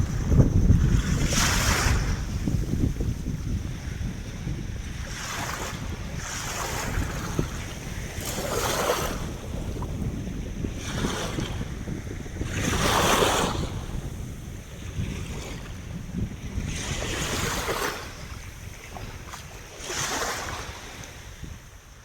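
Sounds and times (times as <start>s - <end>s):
wind buffeting the microphone: 0.0s - 22.0s
ocean waves breaking: 4.8s - 21.7s.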